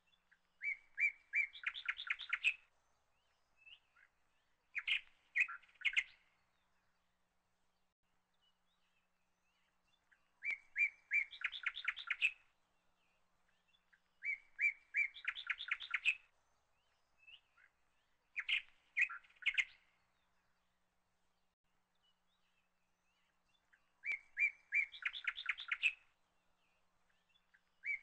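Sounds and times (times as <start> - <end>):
songbird chirping and trilling: 0.0 - 28.0.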